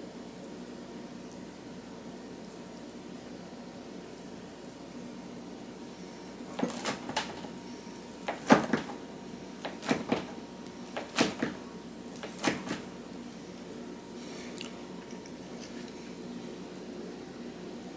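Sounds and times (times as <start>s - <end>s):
kitchen knocks and clicks: 6.5s - 7.6s, 8.2s - 13.0s.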